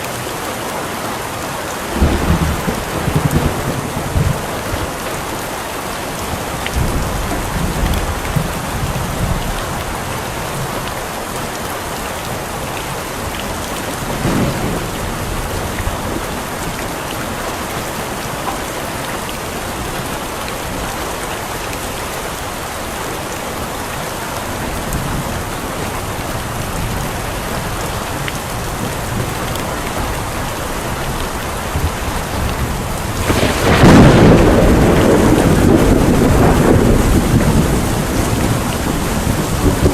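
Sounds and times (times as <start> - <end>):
heavy rain: 0.0 - 39.9
thunder rumbling: 1.9 - 5.0, 12.6 - 17.8, 24.4 - 39.9
loud thunderclap: 2.0 - 4.9, 14.0 - 16.6, 31.6 - 39.9.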